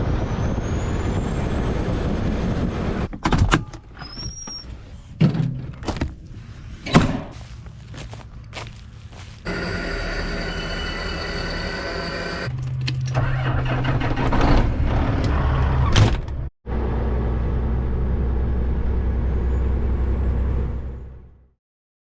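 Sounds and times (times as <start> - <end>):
diesel truck engine rumbling: 4.0 - 21.4.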